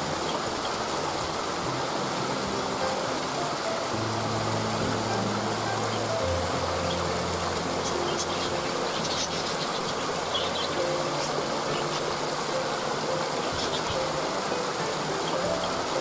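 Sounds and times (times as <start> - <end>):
soft background music: 0.0 - 16.0
waterfall rushing: 0.0 - 16.0
bird chirps: 7.8 - 12.1.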